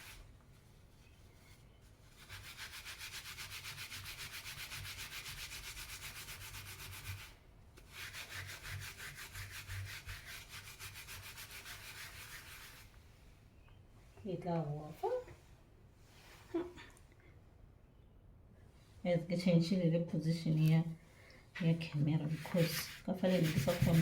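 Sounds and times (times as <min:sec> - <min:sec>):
scrubbing iron soleplate: 0:22.1 - 0:24.0.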